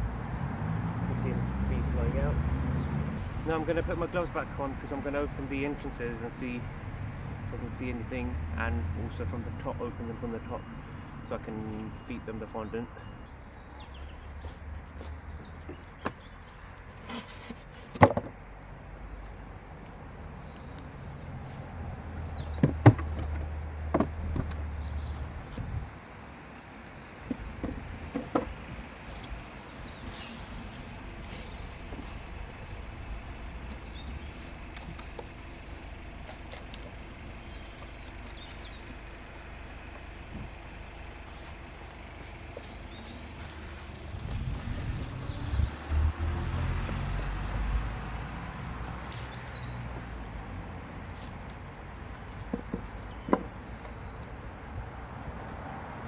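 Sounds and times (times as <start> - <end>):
outdoor background noise: 0.0 - 56.0
faint birds chirping: 9.2 - 56.0
handling knocks and clicks: 22.4 - 24.7, 26.5 - 30.0, 51.2 - 54.4.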